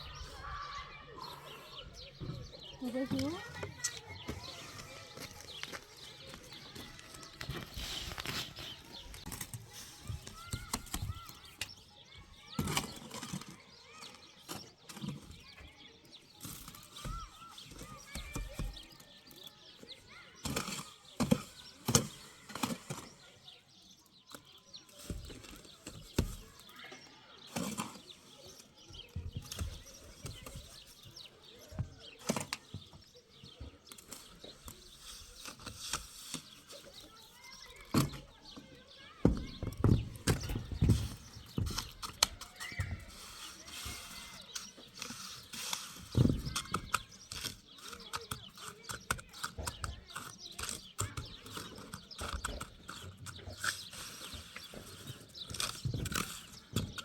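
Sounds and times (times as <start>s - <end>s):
knocks and clattering: 39.1s - 42.4s
heavy thumps: 39.2s - 42.0s.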